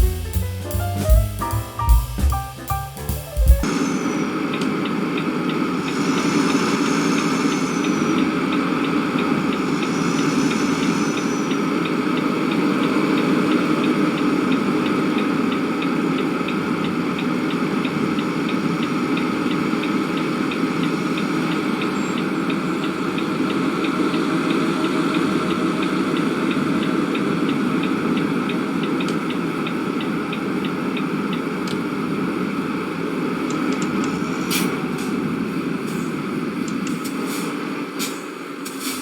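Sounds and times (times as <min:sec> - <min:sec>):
fast even ticking: 0:00.0 - 0:03.7.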